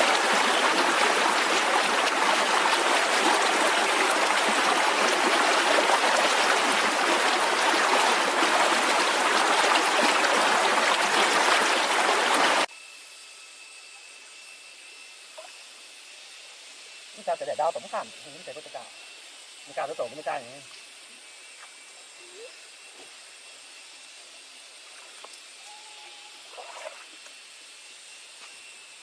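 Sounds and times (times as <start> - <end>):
running water: 0.0 - 12.7.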